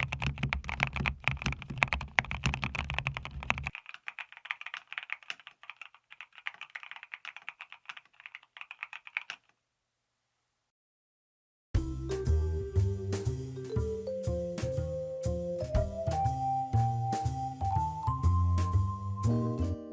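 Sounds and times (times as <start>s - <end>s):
mechanical keyboard typing: 0.0s - 9.5s
music: 11.8s - 19.9s.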